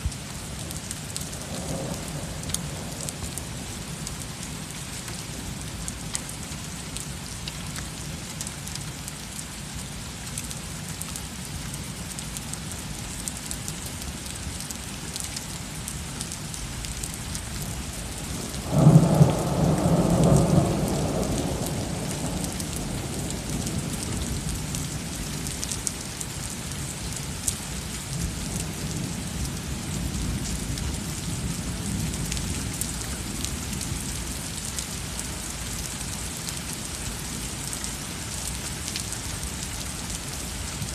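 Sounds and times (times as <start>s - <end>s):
heavy rain falling: 0.0s - 40.9s
rumble of thunder: 1.2s - 3.6s, 18.3s - 24.9s
thunderclap: 18.6s - 23.9s.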